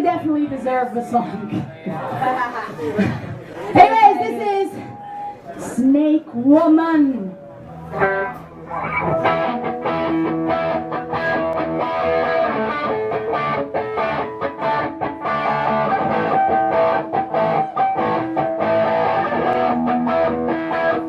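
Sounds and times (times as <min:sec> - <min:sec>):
strummed electric guitar: 0:07.6 - 0:21.0
rock band playing: 0:07.8 - 0:21.0.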